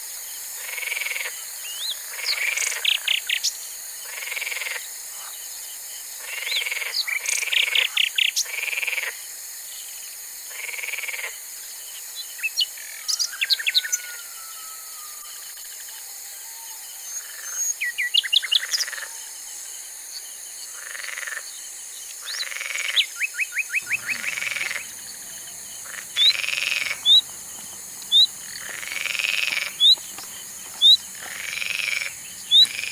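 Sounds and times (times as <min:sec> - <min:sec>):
frogs croaking: 0:00.0 - 0:32.9
high bird chirps: 0:23.6 - 0:32.9.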